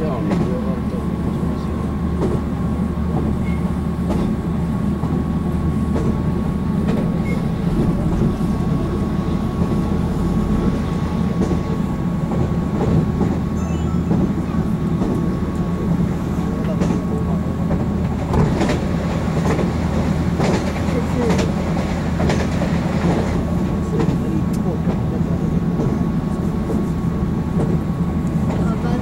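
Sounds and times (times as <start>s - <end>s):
wheels rumbling on rail: 0.0s - 29.0s
thin high tone: 13.6s - 14.8s.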